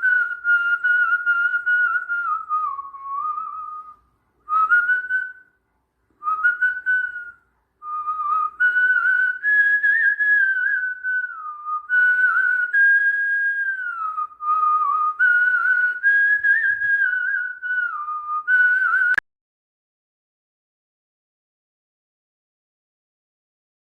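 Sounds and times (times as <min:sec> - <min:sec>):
person whistling a tune: 0:00.0 - 0:05.6, 0:06.2 - 0:19.2.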